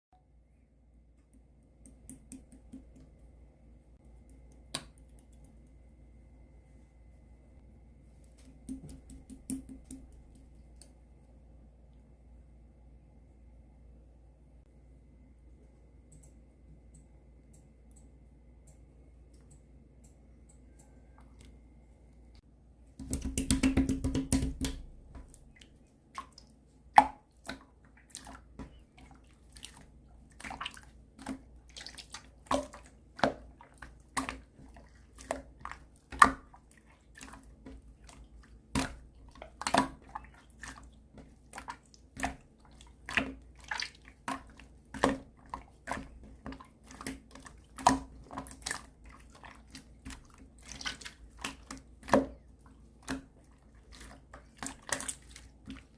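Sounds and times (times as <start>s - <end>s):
slime squishing with wet clicks: 1.1s - 3.3s, 4.0s - 5.9s, 23.0s - 55.9s.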